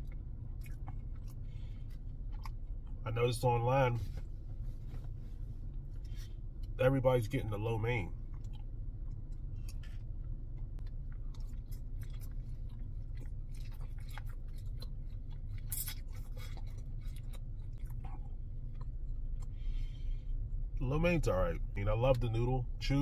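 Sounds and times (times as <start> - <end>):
man chewing noodles: 0.0 - 3.0, 8.1 - 20.7
steady low hum: 0.0 - 23.0.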